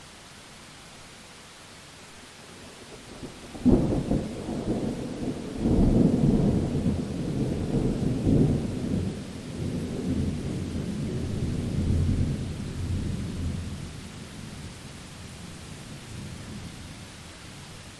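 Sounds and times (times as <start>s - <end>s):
steady rain hiss: 0.0s - 17.9s
rolling thunder rumbling: 3.2s - 14.2s.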